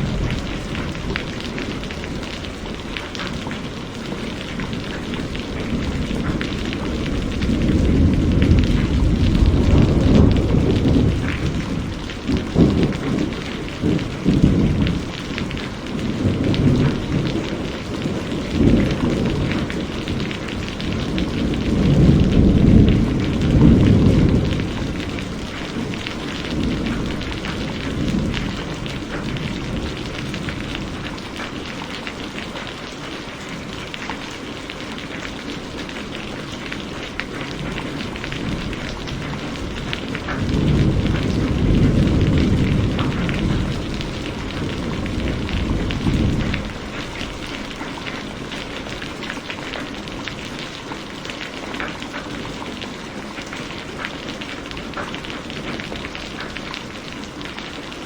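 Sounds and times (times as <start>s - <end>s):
rolling thunder: 0.0s - 31.5s, 36.7s - 50.6s
heavy rain falling: 0.0s - 58.0s.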